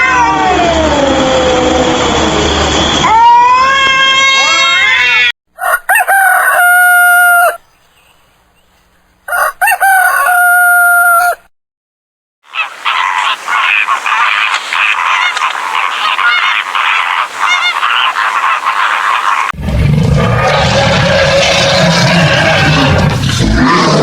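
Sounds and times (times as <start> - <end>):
rooster crowing: 3.0 - 7.6, 9.3 - 11.5.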